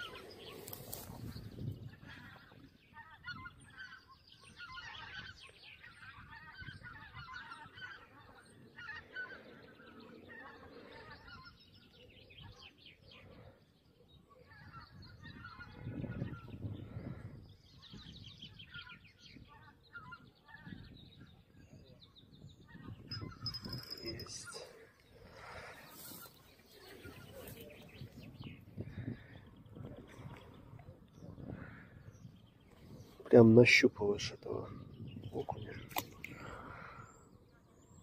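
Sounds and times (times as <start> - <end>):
wind rumble on microphone: 0.0 - 7.9, 14.5 - 24.6, 25.2 - 33.6, 34.4 - 38.0
birds calling: 0.0 - 38.0.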